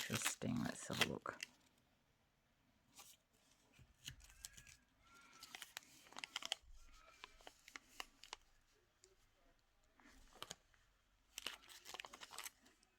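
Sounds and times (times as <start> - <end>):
paper and card rustling: 0.0 - 1.8, 2.9 - 9.2, 10.0 - 12.9.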